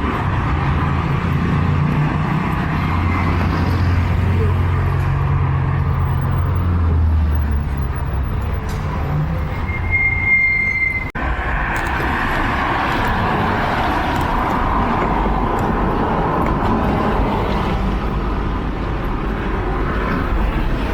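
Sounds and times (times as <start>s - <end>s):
vehicle engine rumble: 0.0s - 20.9s
high squeal: 9.2s - 11.2s.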